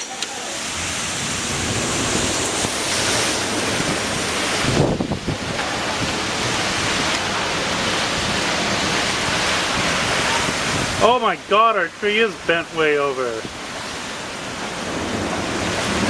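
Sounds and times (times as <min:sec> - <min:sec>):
wind buffeting microphone: 0:00.0 - 0:11.0
strong wind gusting: 0:00.0 - 0:11.5.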